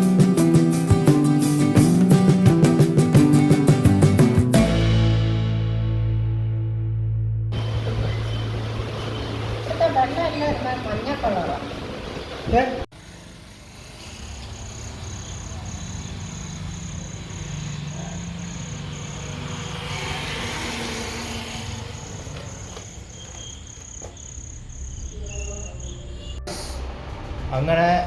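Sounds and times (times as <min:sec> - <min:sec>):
cricket chirping: 0:07.6 - 0:09.9, 0:13.4 - 0:27.5.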